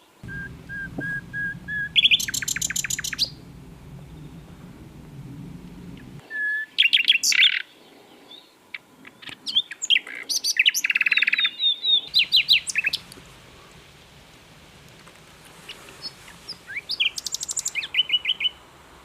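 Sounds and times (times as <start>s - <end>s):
nightingale singing: 0.2s - 6.2s.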